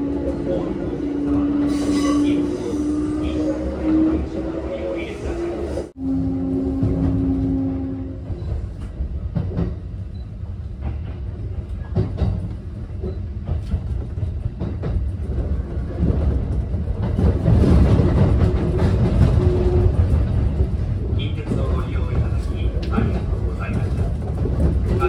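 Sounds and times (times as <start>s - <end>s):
train interior rumble: 0.0s - 25.0s
wheels clacking over rail joints: 10.8s - 25.0s.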